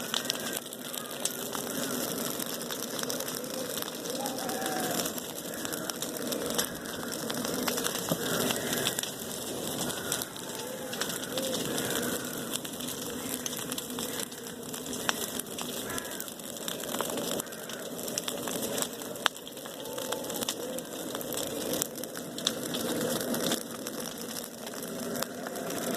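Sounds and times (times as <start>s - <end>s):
bonfire crackling: 0.0s - 25.9s
fire pop: 0.0s - 25.9s.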